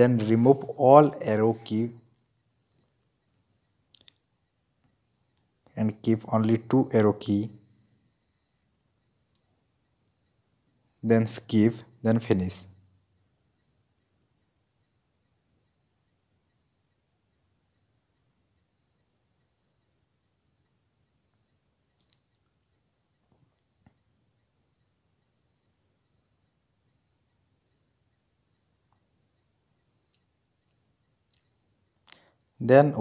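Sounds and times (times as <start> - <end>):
faint clicks: 3.9 - 5.5, 9.3 - 9.5, 21.8 - 22.6, 28.8 - 32.4.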